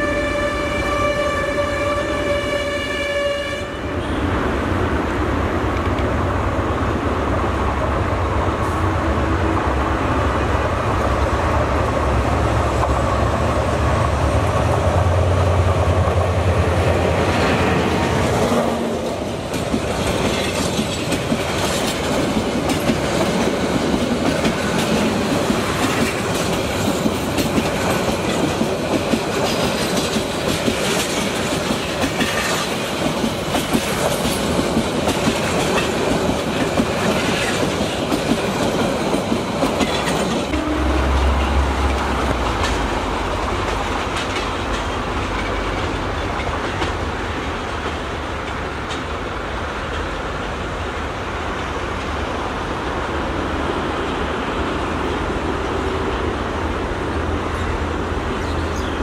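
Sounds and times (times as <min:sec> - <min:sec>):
train wheels clickety-clack: 0:10.7 - 0:52.3
locomotive engine rumble: 0:40.5 - 0:51.5.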